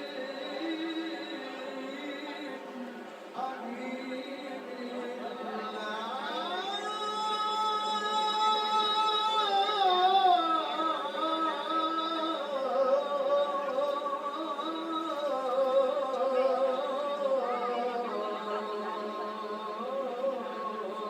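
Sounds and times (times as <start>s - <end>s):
man singing melismatic lines: 3.4s - 21.0s.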